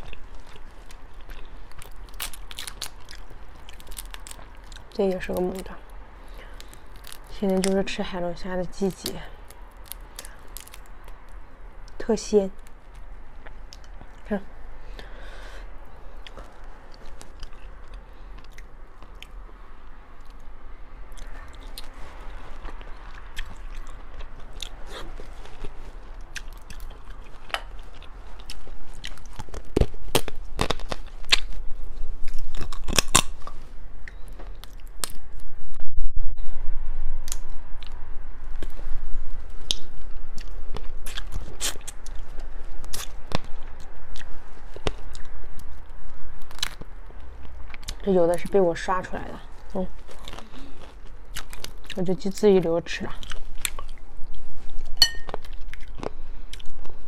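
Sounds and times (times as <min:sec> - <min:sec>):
close-miked chewing: 0:00.0 - 0:14.4, 0:15.9 - 0:19.5, 0:21.1 - 0:35.2, 0:37.3 - 0:57.0
lobster shell cracking: 0:01.8 - 0:05.7, 0:06.4 - 0:07.8, 0:09.0 - 0:11.2, 0:32.6 - 0:33.4.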